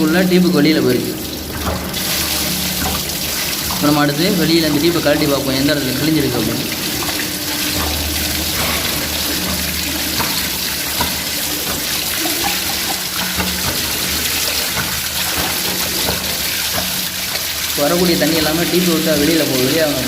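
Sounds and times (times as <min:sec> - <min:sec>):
water pouring from tank: 0:00.0 - 0:20.0.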